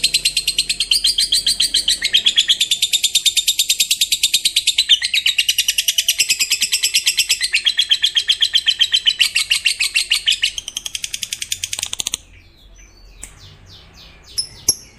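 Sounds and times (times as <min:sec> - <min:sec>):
faint bird chirps: 0:00.0 - 0:14.9
lovebird rapid chatter: 0:05.4 - 0:12.3.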